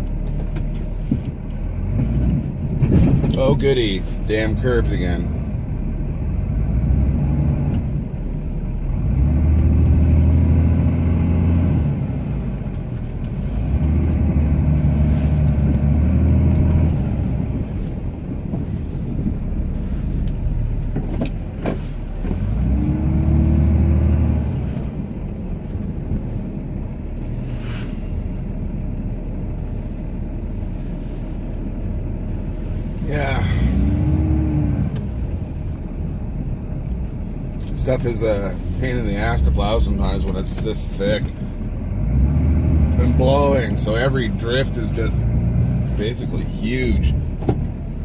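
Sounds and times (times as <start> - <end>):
diesel truck engine under load: 0.0 - 48.0.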